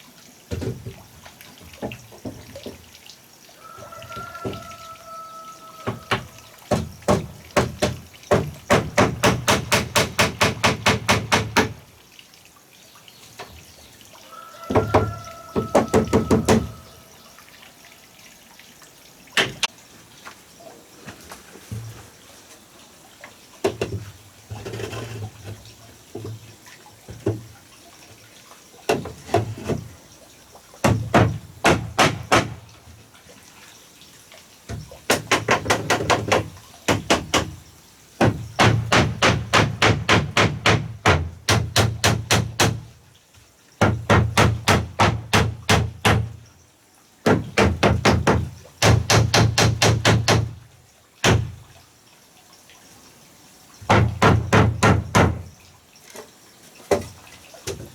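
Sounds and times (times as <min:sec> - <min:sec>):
hand tool striking wood: 0:05.9 - 0:11.8, 0:14.8 - 0:16.8, 0:30.8 - 0:32.6, 0:38.2 - 0:42.8, 0:43.8 - 0:46.3, 0:47.3 - 0:50.5, 0:53.9 - 0:55.4.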